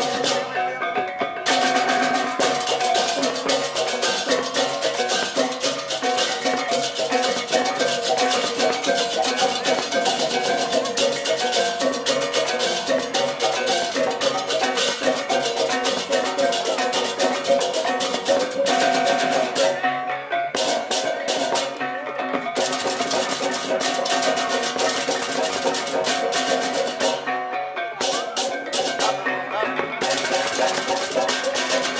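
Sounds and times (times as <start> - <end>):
drums: 0.0 - 31.9
clashing cymbals: 1.5 - 19.8.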